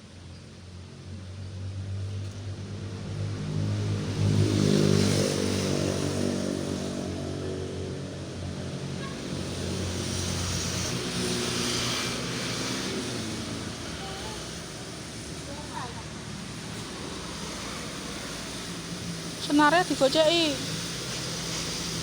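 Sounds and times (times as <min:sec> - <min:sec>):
tyre noise of passing traffic: 0:00.0 - 0:22.0
vehicle engine hum: 0:00.0 - 0:22.0.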